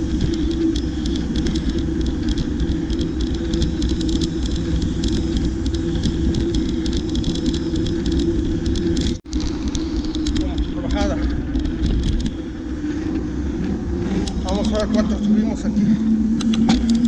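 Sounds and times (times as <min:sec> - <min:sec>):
small rattling clicks: 0:00.0 - 0:12.6, 0:16.2 - 0:17.0
bicycle tyre and wind rumble: 0:00.0 - 0:17.0.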